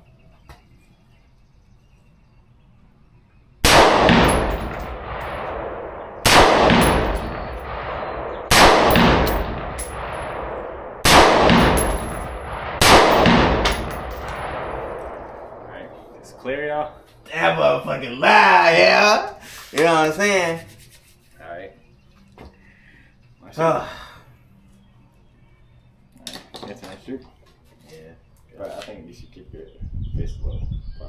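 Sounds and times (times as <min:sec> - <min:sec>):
gunshots with ringing echo: 0:03.6 - 0:17.0.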